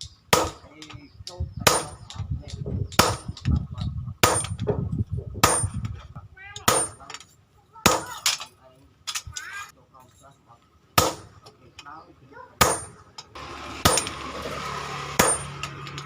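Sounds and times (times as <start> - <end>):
hammer striking steel on anvil: 12.6 - 13.2, 13.8 - 14.2, 15.1 - 16.0.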